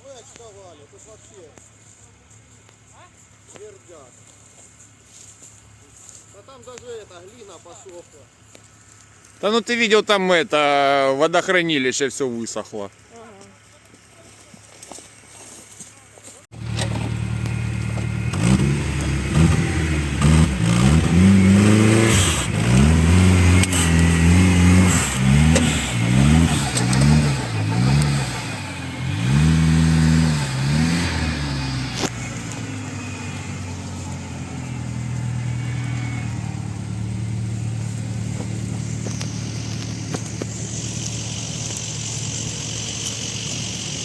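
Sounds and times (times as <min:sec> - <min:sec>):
vehicle engine revving: 0:16.5 - 0:44.0.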